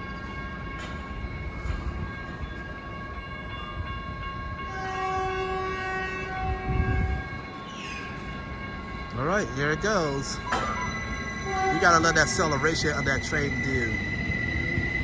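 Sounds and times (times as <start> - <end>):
electrical hum from train: 0.0 - 15.0
train horn: 3.1 - 7.9, 9.2 - 13.3.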